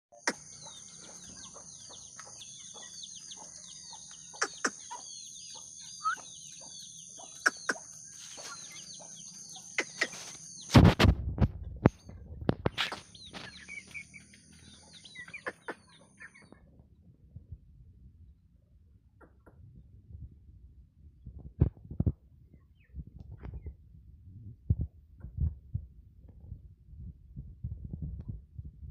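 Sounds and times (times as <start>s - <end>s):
chicks peeping: 0.2s - 16.9s, 22.5s - 23.8s.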